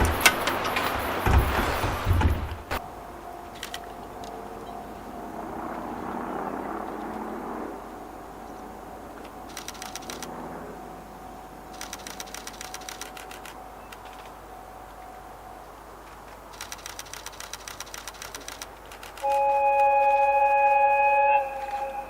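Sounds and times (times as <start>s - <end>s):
rapid even clicking: 0.0s - 2.8s, 9.5s - 10.3s, 11.7s - 14.4s, 16.5s - 19.3s
diesel train passing: 0.0s - 22.0s.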